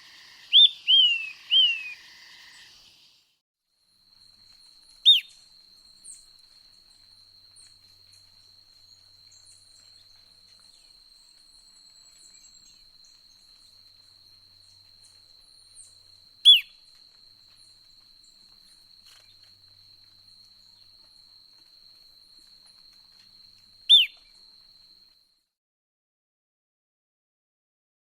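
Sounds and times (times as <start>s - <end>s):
loud downward-sweeping bird calls: 0.0s - 2.1s
faint high chirps: 0.0s - 2.9s
high-pitched insect trill: 0.0s - 3.2s.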